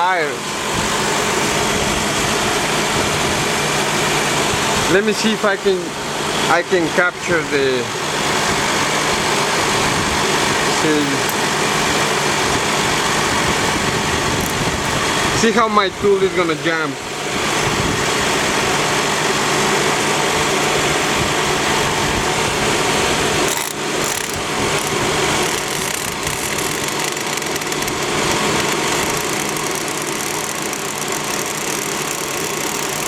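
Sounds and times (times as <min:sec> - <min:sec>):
tool chattering on spinning tire: 0:10.8 - 0:11.6, 0:14.2 - 0:15.4, 0:23.4 - 0:33.0
wheel and drivetrain running: 0:14.3 - 0:15.0, 0:23.5 - 0:33.0.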